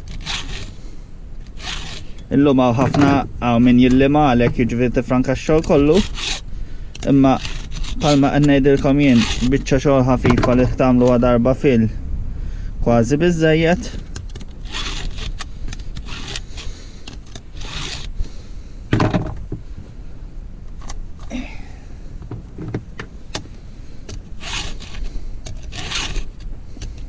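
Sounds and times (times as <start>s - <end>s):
hand file rasping on chain: 0.0s - 0.8s, 1.4s - 2.3s, 5.7s - 6.4s, 7.3s - 9.6s, 14.6s - 16.8s, 17.6s - 18.1s, 24.4s - 27.0s.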